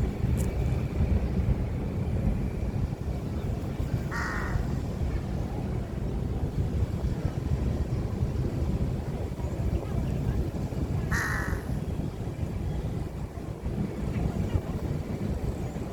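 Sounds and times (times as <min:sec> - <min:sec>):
steady low rumble: 0:00.0 - 0:09.3, 0:10.7 - 0:13.9
harsh bird call: 0:11.1 - 0:11.8.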